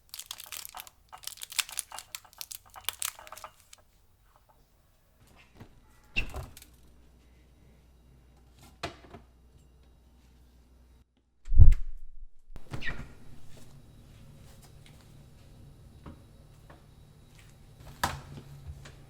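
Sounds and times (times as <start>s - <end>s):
plastic bag crinkling: 0.0s - 3.8s.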